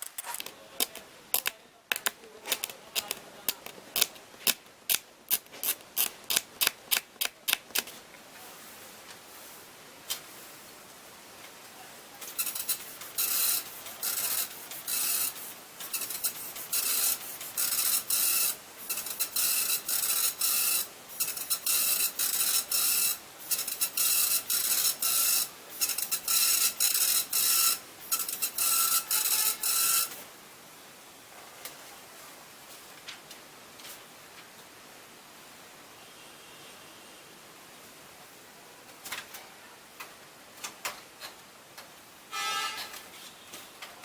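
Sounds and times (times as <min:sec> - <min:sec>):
dot matrix printer printing: 0:12.2 - 0:30.2.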